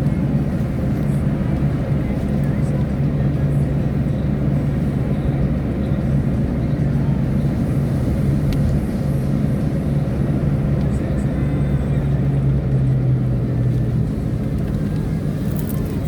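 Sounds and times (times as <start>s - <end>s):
car engine droning: 0.0s - 16.0s
tyre and road noise: 13.3s - 16.0s.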